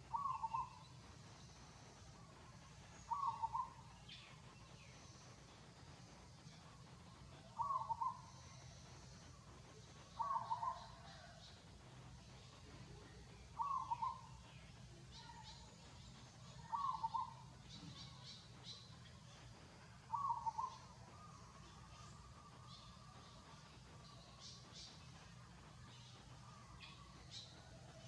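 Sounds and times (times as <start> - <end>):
bird calling: 0.0 - 0.9, 3.0 - 3.9, 7.5 - 8.8, 10.1 - 11.4, 13.6 - 14.4, 16.6 - 18.8, 20.1 - 23.4
faint high chirps: 0.0 - 28.0.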